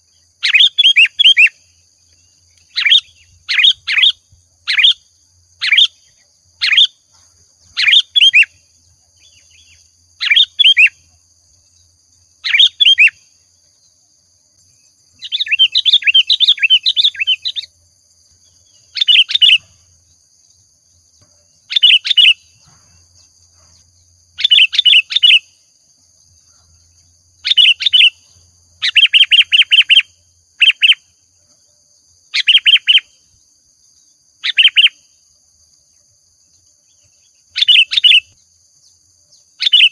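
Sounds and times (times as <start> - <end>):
bulbul singing whistled phrases: 0.0 - 7.0, 7.6 - 14.0, 14.7 - 17.8, 18.5 - 19.8, 21.6 - 22.6, 24.0 - 25.7, 26.8 - 31.2, 32.3 - 33.4, 34.4 - 35.2, 36.9 - 39.9.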